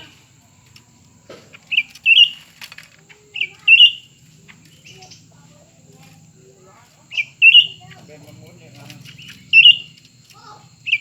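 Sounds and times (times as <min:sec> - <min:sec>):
bird two-part calls: 0:01.4 - 0:05.4, 0:07.0 - 0:11.0.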